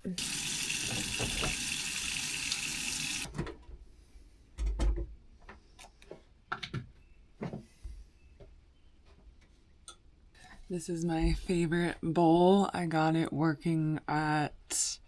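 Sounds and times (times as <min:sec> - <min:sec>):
tap water running into sink: 0:00.0 - 0:03.3.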